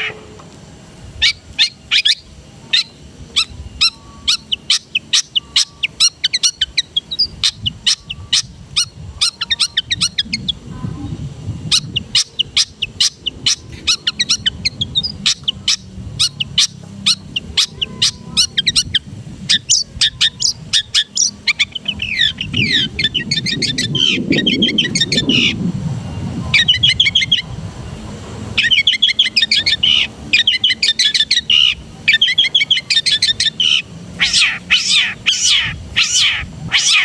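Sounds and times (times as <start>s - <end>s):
bird singing chips and whistles: 1.2s - 10.6s, 11.7s - 25.6s, 26.6s - 27.4s, 28.6s - 37.0s
low rumble: 21.9s - 28.6s.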